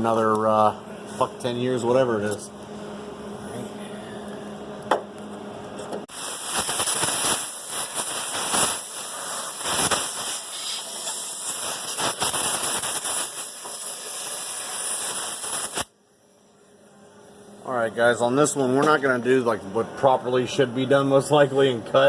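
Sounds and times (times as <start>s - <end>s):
welder arc crackling and hissing: 6.0s - 16.0s.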